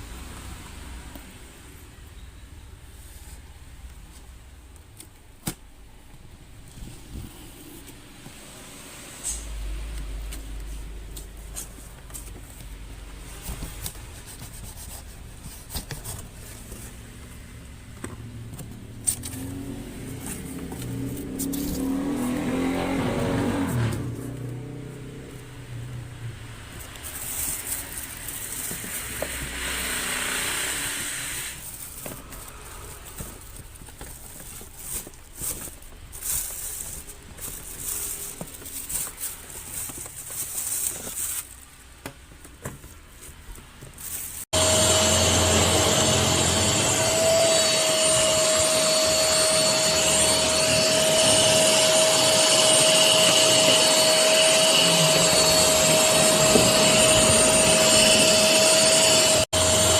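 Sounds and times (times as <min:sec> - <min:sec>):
vacuum cleaner motor whining: 0:19.3 - 0:24.2, 0:27.0 - 0:34.6, 0:44.5 - 0:59.9.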